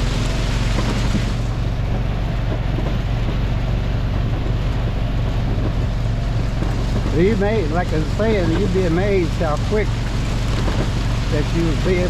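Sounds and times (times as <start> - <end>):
small engine running: 0.0 - 1.6.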